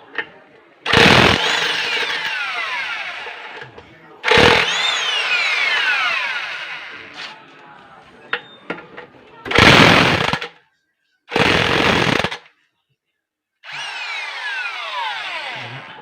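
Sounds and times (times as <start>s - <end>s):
impact wrench bursts: 0.9s - 3.4s, 4.2s - 6.8s, 9.5s - 10.5s, 11.3s - 12.4s
motor spinning down whine: 11.4s - 12.4s.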